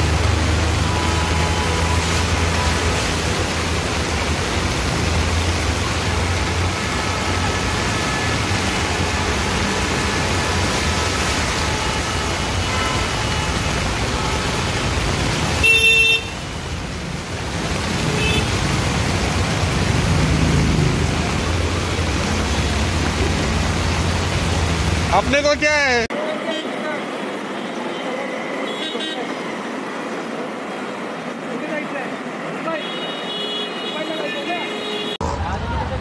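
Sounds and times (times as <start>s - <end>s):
heavy rain hissing: 0.0s - 34.6s
vehicle horn honk: 11.6s - 14.6s, 15.6s - 16.4s, 28.6s - 29.3s, 32.7s - 35.2s.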